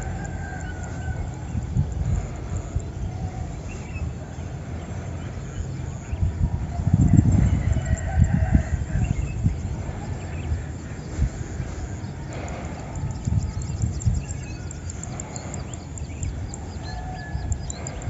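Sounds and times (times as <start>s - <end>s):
rooster crowing: 0.0s - 1.8s, 7.4s - 9.4s.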